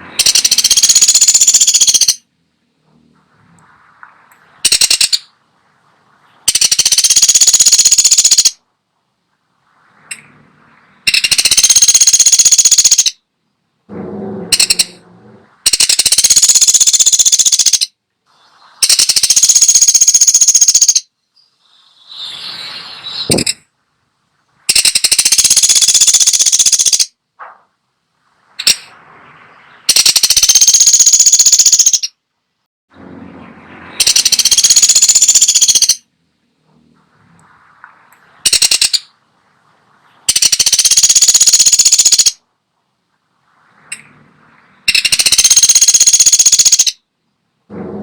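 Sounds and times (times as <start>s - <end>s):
woodpecker rattling trill calls: 0.2s - 2.3s, 4.6s - 5.3s, 6.5s - 8.6s, 11.1s - 13.2s, 14.5s - 15.0s, 15.7s - 18.0s, 18.8s - 21.1s, 23.1s - 23.6s, 24.7s - 27.1s, 29.9s - 32.2s, 34.0s - 36.0s, 38.4s - 39.1s, 40.3s - 42.4s, 44.9s - 47.0s.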